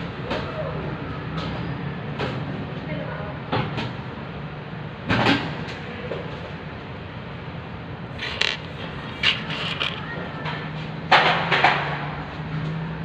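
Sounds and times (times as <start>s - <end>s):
knocks and clatters: 8.2s - 12.0s.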